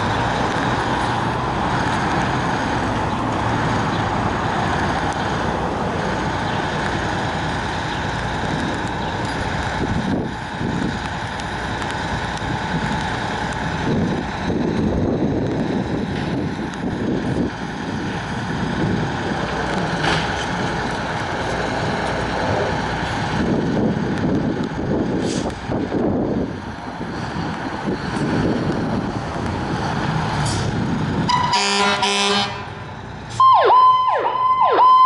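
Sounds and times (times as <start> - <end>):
heavy vehicle engine running: 0.0 - 33.6
street traffic noise: 0.0 - 35.0
wind on microphone: 8.4 - 31.5.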